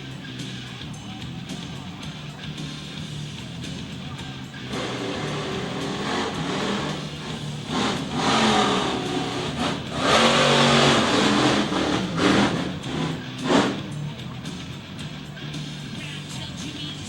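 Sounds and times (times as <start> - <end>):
monster truck engine revving: 3.1 - 16.0.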